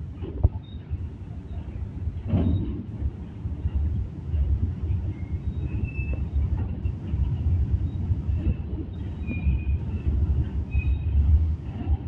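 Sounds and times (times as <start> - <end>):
train wheels rumbling on rails: 0.0 - 12.0
faint high squeals: 5.1 - 6.4, 9.0 - 11.2.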